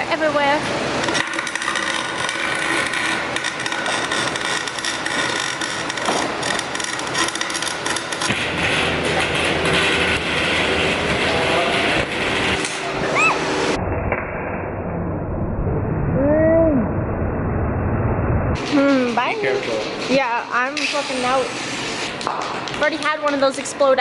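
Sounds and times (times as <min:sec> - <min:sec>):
welding arc crackling and sizzling: 0:00.0 - 0:13.8, 0:18.6 - 0:24.0.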